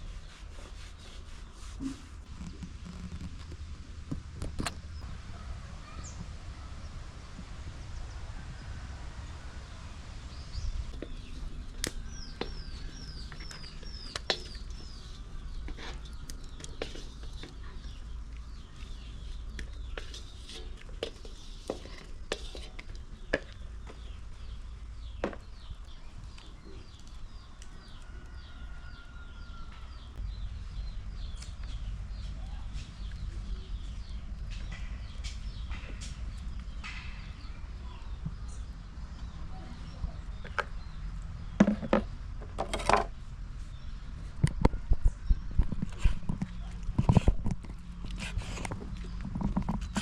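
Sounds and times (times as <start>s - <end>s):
small birds chirping: 0.1s - 42.6s, 43.5s - 50.0s
steady low rumble: 2.2s - 13.2s, 30.1s - 42.4s.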